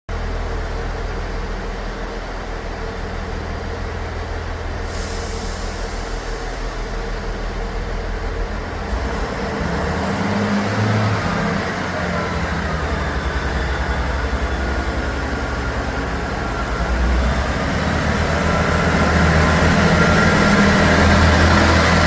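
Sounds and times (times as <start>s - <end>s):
diesel train engines running: 0.1s - 22.0s
hiss of air: 4.9s - 7.3s.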